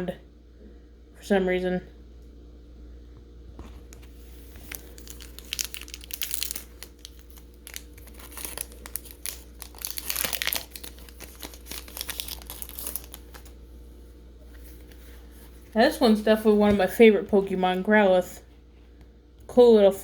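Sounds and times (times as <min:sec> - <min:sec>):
foil wrapper tearing and crinkling: 0:04.0 - 0:13.6.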